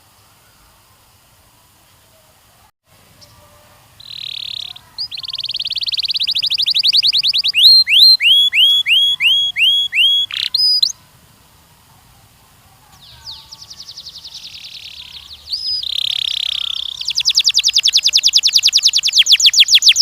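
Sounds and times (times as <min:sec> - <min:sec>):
canary singing: 0:03.2 - 0:11.0, 0:12.8 - 0:20.0.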